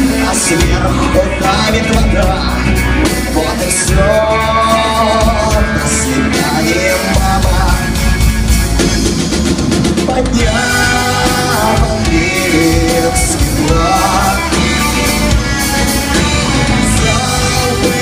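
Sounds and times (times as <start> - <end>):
person singing: 0.0 - 8.3, 10.0 - 18.0
rock band playing live: 0.0 - 18.0.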